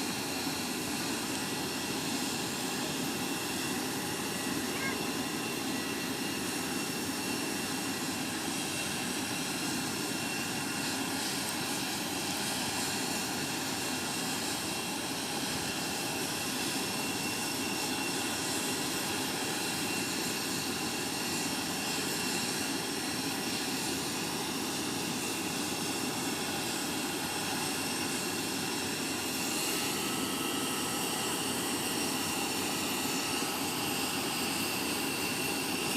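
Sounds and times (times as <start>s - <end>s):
jet engines running: 0.0s - 35.9s.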